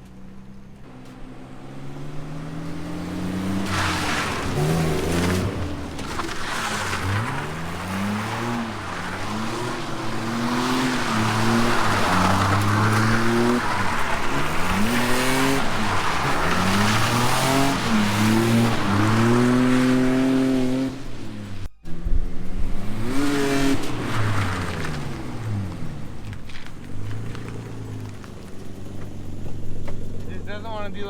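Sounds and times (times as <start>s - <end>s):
car engine revving: 0.0s - 31.0s
tyres squealing and skidding: 0.0s - 31.0s.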